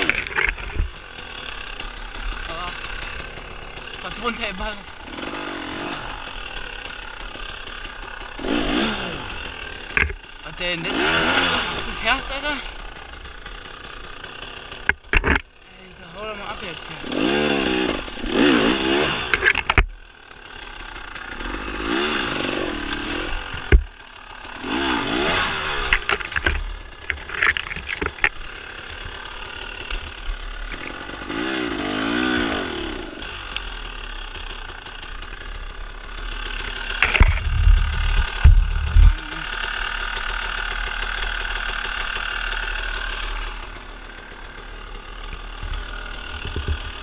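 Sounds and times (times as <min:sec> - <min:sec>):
dirt bike engine revving: 0:00.0 - 0:47.0
heavy thumps: 0:23.5 - 0:23.9, 0:37.0 - 0:39.3.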